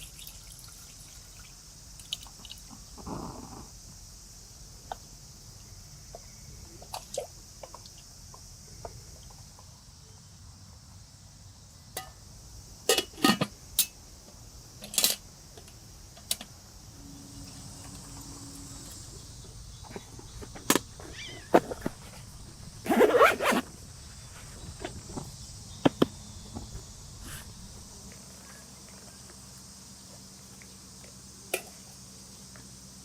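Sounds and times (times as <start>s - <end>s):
steady high hiss: 0.0s - 33.0s
camp cooking gear clinking: 12.8s - 14.0s, 17.8s - 23.6s.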